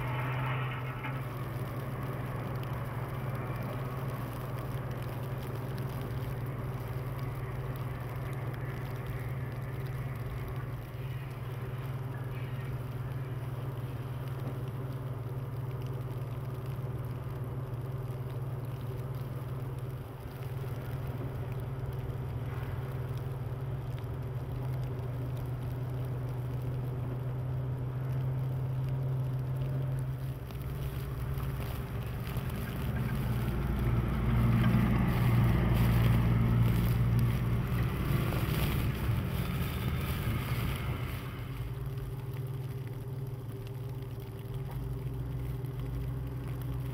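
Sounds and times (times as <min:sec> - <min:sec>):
vehicle passing: 0:00.0 - 0:11.4, 0:29.9 - 0:43.0
vehicle engine humming: 0:00.0 - 0:46.9.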